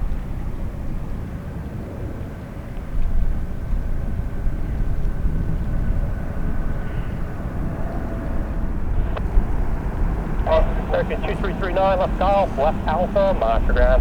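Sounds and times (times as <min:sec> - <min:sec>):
faint engine whine: 0:00.0 - 0:14.0
jet engines rumbling: 0:00.0 - 0:14.0.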